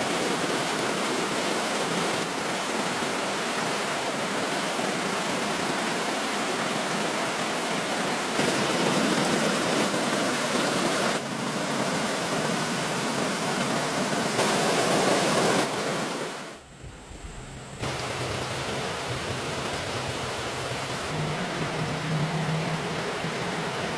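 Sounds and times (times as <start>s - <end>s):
rushing water: 0.0s - 16.7s, 17.3s - 23.9s.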